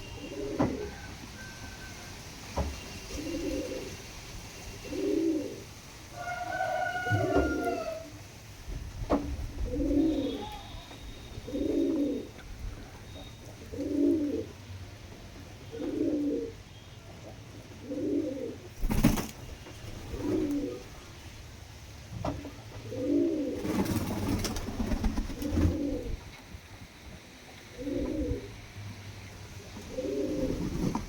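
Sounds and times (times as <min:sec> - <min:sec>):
pigeon cooing: 0:00.0 - 0:01.1, 0:03.1 - 0:04.0, 0:04.8 - 0:05.6, 0:06.2 - 0:08.2, 0:09.4 - 0:14.6, 0:15.7 - 0:16.6, 0:17.8 - 0:18.7, 0:20.1 - 0:21.0, 0:22.8 - 0:23.8, 0:25.2 - 0:26.2, 0:27.7 - 0:28.6, 0:29.8 - 0:31.0.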